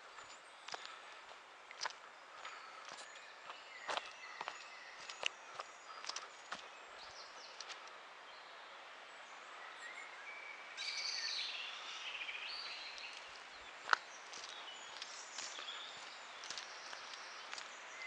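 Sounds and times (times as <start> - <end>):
faint outdoor hiss: 0.0 - 18.0
small birds chirping: 0.0 - 18.0.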